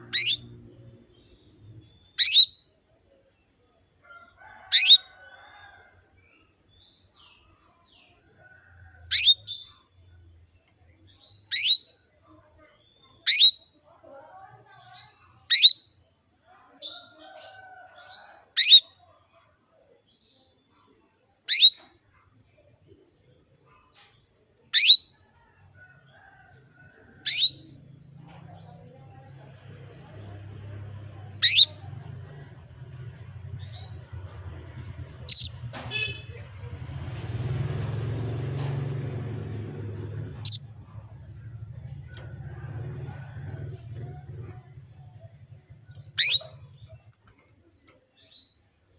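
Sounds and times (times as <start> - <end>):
canary sharp call notes: 0.1 - 0.4, 31.4 - 31.8, 46.2 - 46.6.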